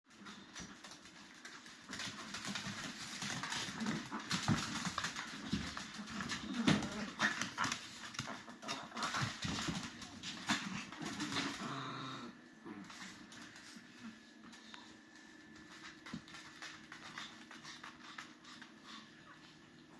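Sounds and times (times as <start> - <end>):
small dog growling and barking: 10.4 - 13.2.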